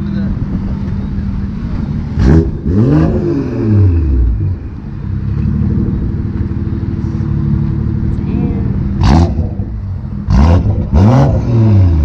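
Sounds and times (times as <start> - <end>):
car engine revving and idling: 0.0 - 12.0.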